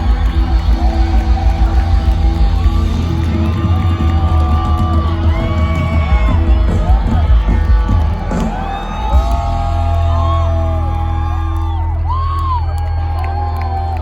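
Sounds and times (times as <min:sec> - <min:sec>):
crowd whooping and yelling: 0:00.0 - 0:14.0
live rock music: 0:00.0 - 0:14.0.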